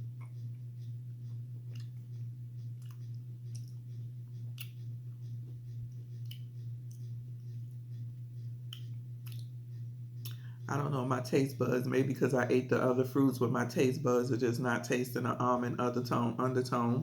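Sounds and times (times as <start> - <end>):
low electrical hum: 0.0 - 17.0
mouth clicks chewing: 4.4 - 4.8, 8.7 - 9.5.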